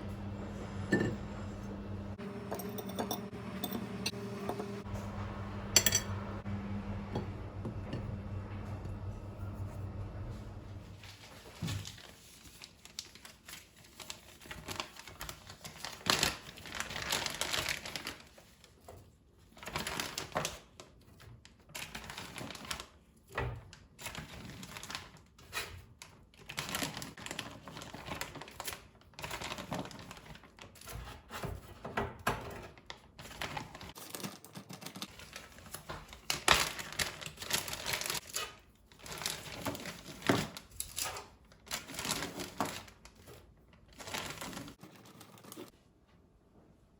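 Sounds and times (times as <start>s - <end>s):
plastic crinkling: 11.0s - 18.6s, 33.0s - 45.7s.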